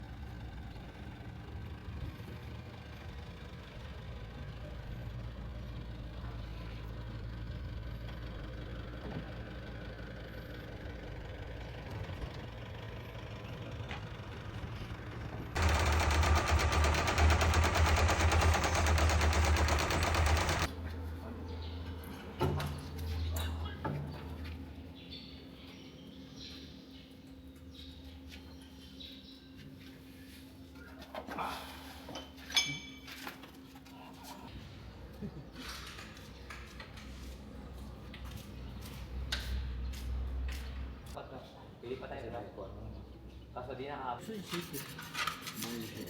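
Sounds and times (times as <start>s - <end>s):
bulldozer diesel engine: 0.0s - 21.5s
dense rapid clatter: 15.6s - 20.7s.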